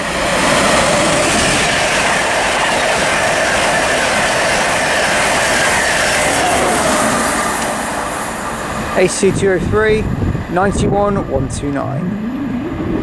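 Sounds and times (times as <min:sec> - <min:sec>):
train passing at speed: 0:00.0 - 0:13.0
whining tones: 0:11.2 - 0:13.0.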